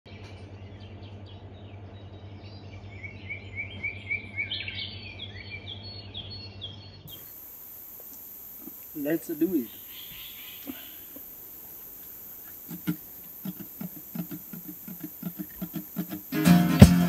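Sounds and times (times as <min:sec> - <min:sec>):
steady high hiss: 0:07.1 - 0:17.0
steady low hum: 0:07.1 - 0:17.0.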